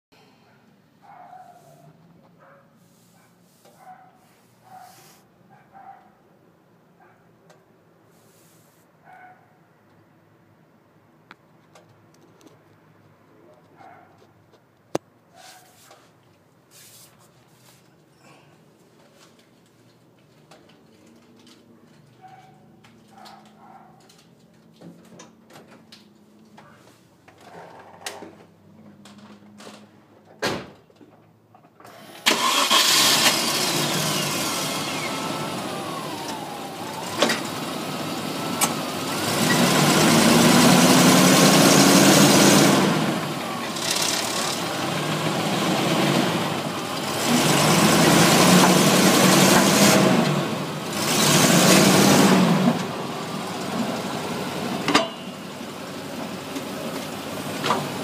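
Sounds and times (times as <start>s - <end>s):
car engine starting and revving: 32.0s - 58.0s.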